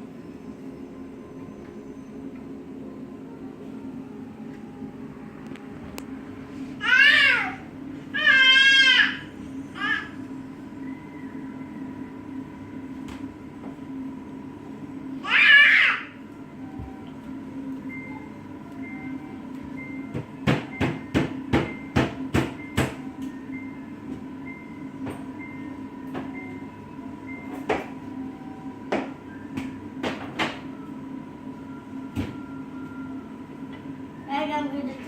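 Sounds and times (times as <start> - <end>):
steady hum: 0.0 - 35.0
child squealing: 6.8 - 7.6, 15.2 - 16.2
knocks and taps on fridge: 20.1 - 23.0, 28.9 - 30.6.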